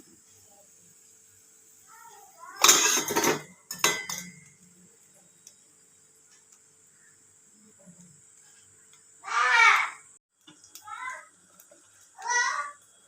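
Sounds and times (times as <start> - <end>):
kitchen utensil clink: 2.6 - 4.6.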